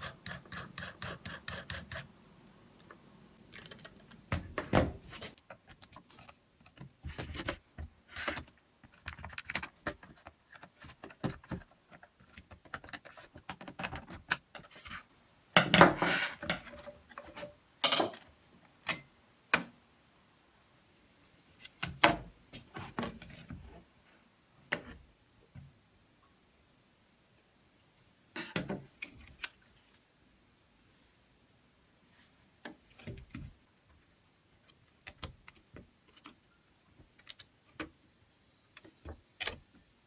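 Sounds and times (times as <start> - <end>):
small hard parts clicking and rattling: 3.4 - 4.6.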